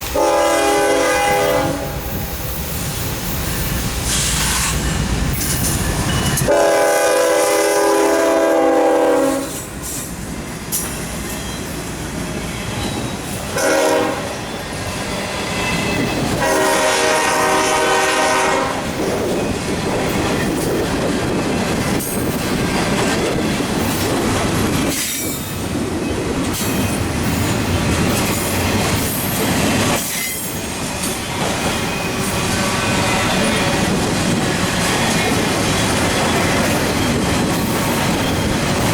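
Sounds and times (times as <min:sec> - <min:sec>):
locomotive engines rumbling: 0:00.0 - 0:38.9
rail cars clickety-clack: 0:00.0 - 0:38.9
locomotive air horn: 0:00.1 - 0:02.2, 0:06.5 - 0:09.7, 0:13.5 - 0:14.5, 0:16.3 - 0:18.9
train wheel squeal: 0:01.0 - 0:07.0, 0:07.9 - 0:38.9.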